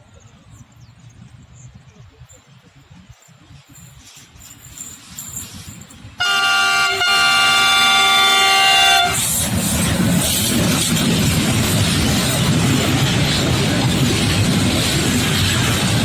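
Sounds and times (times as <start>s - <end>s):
train wagons rumbling on rails: 0.0s - 16.0s
train horn: 6.2s - 9.4s.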